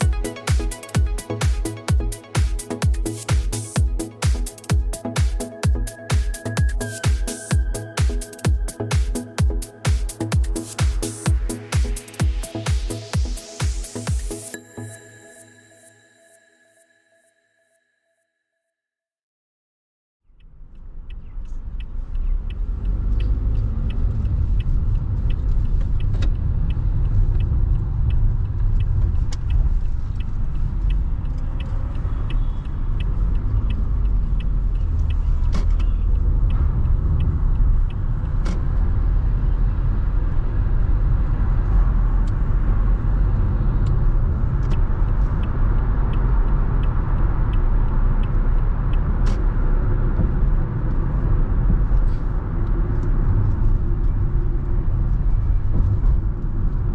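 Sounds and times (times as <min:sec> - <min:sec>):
car road and wind noise: 0:20.3 - 0:56.9.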